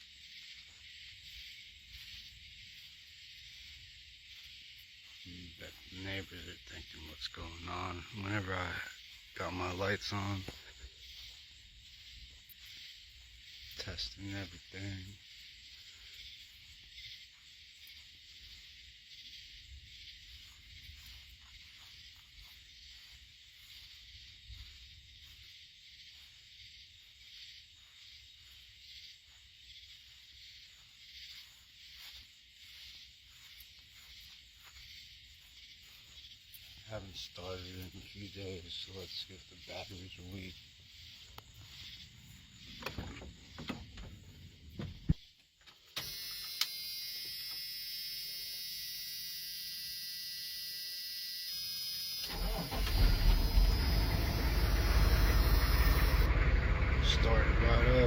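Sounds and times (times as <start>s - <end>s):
high hiss: 46.0s - 56.3s
high whine: 46.0s - 58.0s
diesel engine cranking and running: 52.2s - 58.0s
low rumble: 53.4s - 58.0s.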